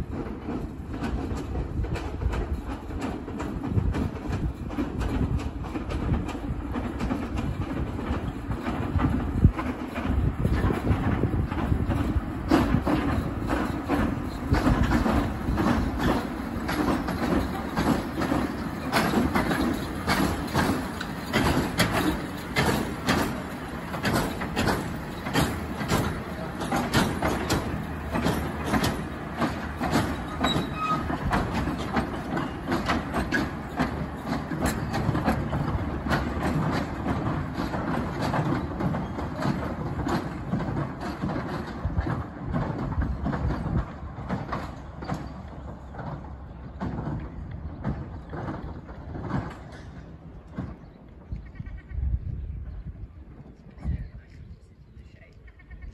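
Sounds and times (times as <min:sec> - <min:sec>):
train wheels clicking over rail joints: 0:00.0 - 0:54.8
rumble of wheels and carriages: 0:00.0 - 0:55.9.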